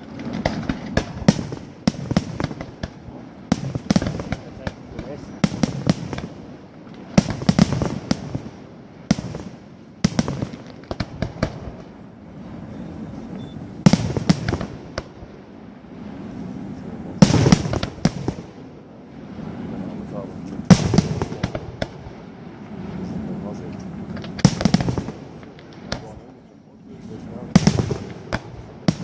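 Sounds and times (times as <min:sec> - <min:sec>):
firework shells bursting: 0:00.0 - 0:12.0, 0:13.8 - 0:15.3, 0:17.2 - 0:18.7, 0:20.4 - 0:22.3, 0:23.7 - 0:29.0
firework crackling: 0:00.0 - 0:29.0.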